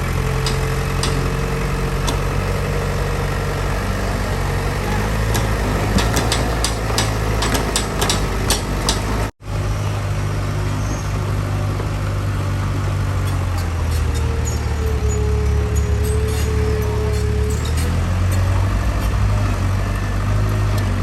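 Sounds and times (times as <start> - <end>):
diesel engine running: 0.0 - 21.0
sharp metallic clanks: 0.4 - 2.3, 5.3 - 9.3.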